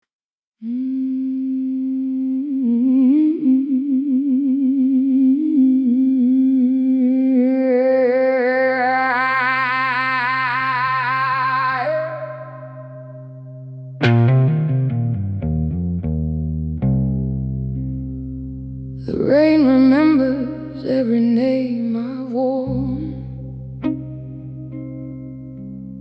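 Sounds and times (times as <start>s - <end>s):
voice humming with vibrato: 0.6s - 13.6s.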